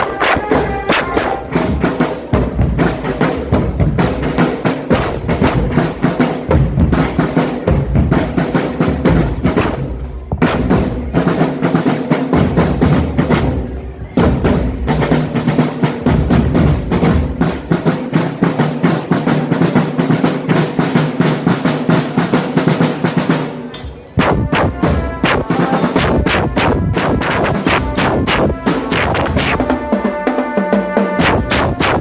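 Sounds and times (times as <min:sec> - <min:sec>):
snare drum rolls: 0:00.0 - 0:23.6, 0:24.2 - 0:32.0
marching drum band playing: 0:00.0 - 0:32.0
bass drums beating: 0:24.2 - 0:29.8, 0:31.2 - 0:32.0.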